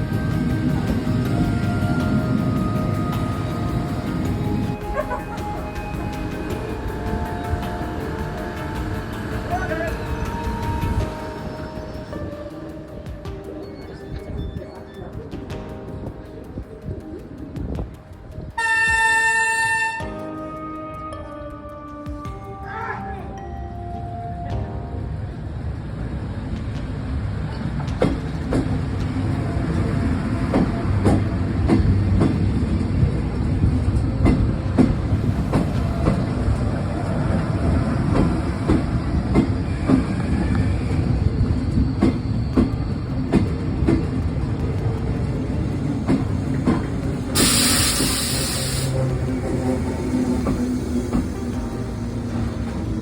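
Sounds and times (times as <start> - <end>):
electric train rumbling on rails: 0.0 - 53.0
wheels clicking over rail joints: 26.4 - 53.0
short loud hiss: 47.4 - 49.0.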